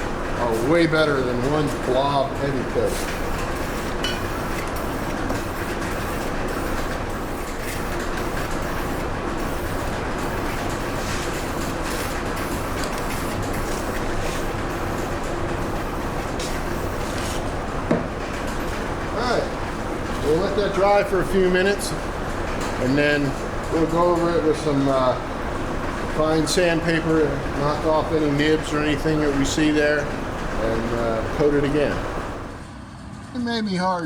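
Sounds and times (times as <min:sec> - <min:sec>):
spray can hissing: 0:03.0 - 0:17.5.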